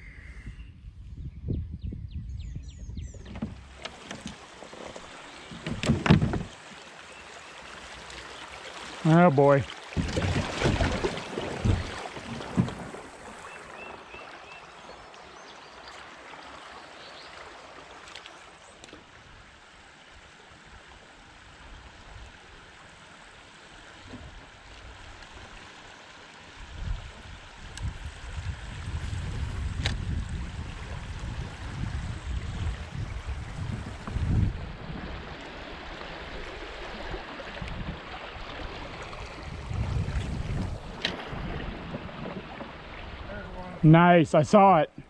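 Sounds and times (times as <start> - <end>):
creek water rushing: 3.6 - 45.0.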